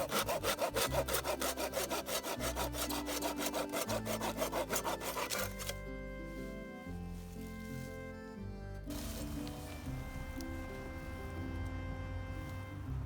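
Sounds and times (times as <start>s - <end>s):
hand saw cutting wood: 0.0s - 5.8s
gentle background music: 0.0s - 13.0s.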